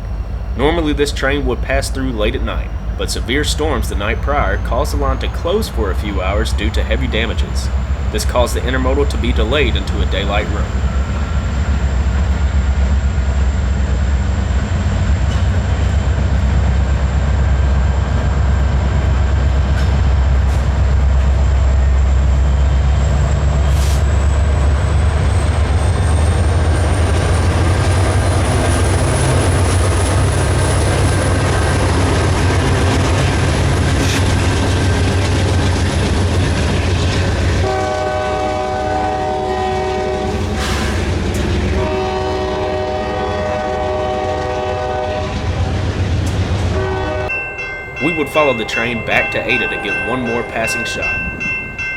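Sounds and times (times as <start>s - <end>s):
freight train rumbling past: 0.0s - 51.9s
train air horn: 37.6s - 41.1s, 41.7s - 45.8s, 46.7s - 47.4s.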